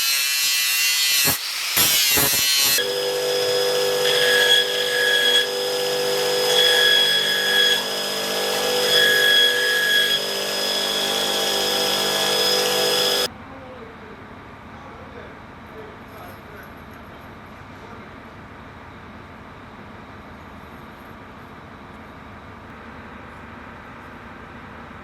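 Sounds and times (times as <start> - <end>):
high whine of tool: 0.0 - 13.3
power tool motor hum: 1.1 - 13.3.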